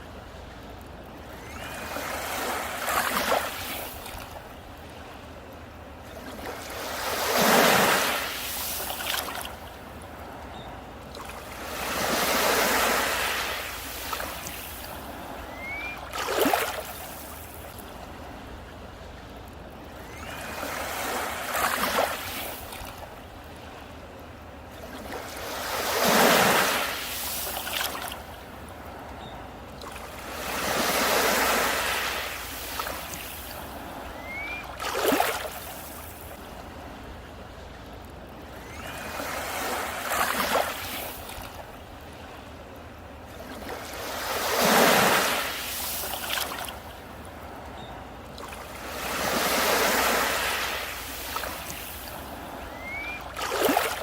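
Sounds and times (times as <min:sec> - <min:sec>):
sea waves breaking on beach: 0:00.0 - 0:54.0
sharp water splashes: 0:52.8 - 0:54.0.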